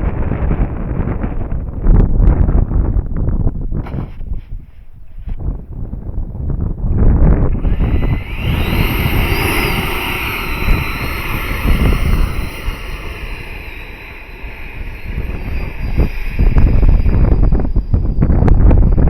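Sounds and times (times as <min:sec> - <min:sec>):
wind buffeting microphone: 0:00.0 - 0:19.0
electric ducted fan whining: 0:06.7 - 0:19.0.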